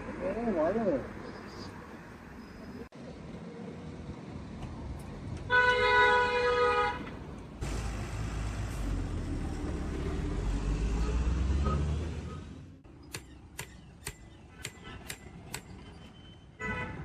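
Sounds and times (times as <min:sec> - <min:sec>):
vehicle horn honking: 0:05.5 - 0:07.1, 0:16.6 - 0:17.0
motor vehicle passing: 0:07.6 - 0:12.8.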